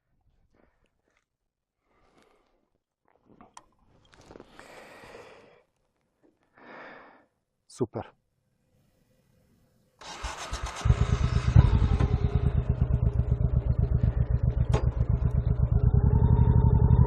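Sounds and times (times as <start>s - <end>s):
motorcycle engine starting and running: 10.0s - 17.0s.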